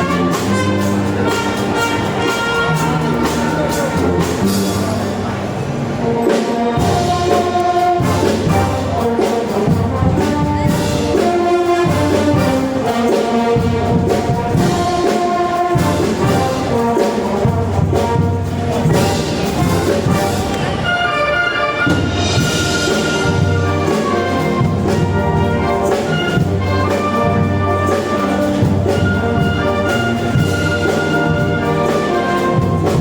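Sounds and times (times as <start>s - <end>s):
brass band playing: 0.0s - 33.0s.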